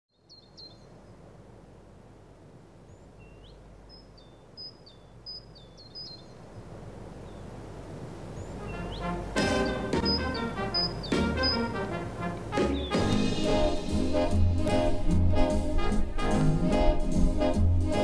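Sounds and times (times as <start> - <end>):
bird chirping: 0.1 - 1.2, 2.9 - 7.6, 8.3 - 13.8
background hiss: 0.1 - 18.0.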